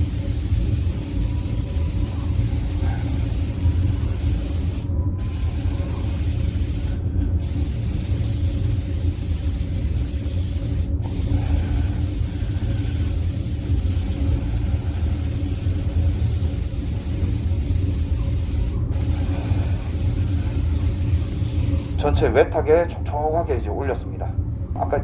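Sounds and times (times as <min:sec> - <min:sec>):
paint spray gun hiss: 0:00.0 - 0:22.0
steady low rumble: 0:00.0 - 0:25.0.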